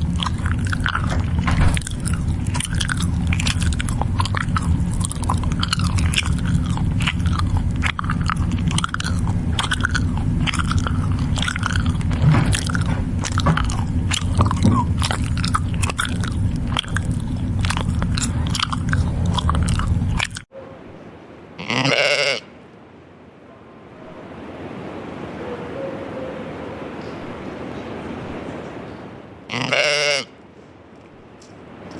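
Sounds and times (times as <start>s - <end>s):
goats crunching feed: 0.0s - 20.5s
low rumble: 0.0s - 21.4s.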